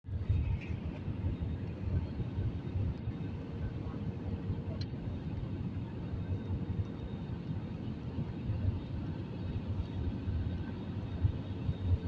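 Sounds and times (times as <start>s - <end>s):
airliner engine rumble in cabin: 0.1s - 12.0s
faint steady hum: 0.1s - 12.0s.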